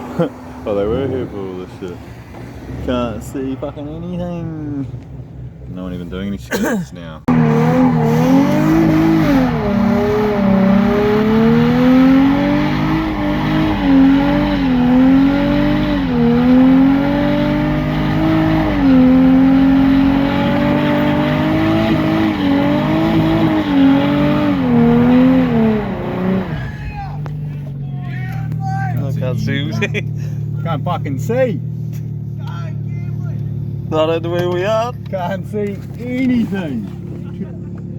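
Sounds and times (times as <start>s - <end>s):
car engine at high revs: 7.3s - 27.6s.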